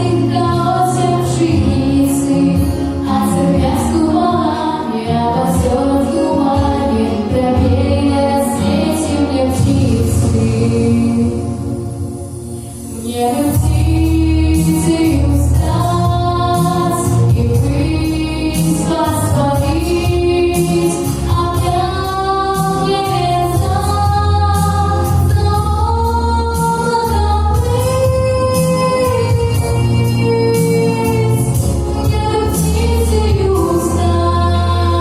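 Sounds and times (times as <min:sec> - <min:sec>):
girl singing with vibrato: 0:00.0 - 0:11.6, 0:12.9 - 0:35.0
backing track with bass and beat: 0:09.5 - 0:35.0.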